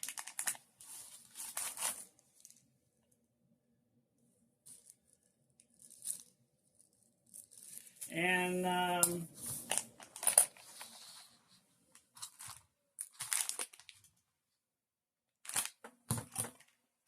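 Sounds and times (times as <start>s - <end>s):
rustling and crinkling handling: 0.0s - 2.7s, 4.6s - 8.4s, 9.1s - 14.2s, 15.4s - 16.8s.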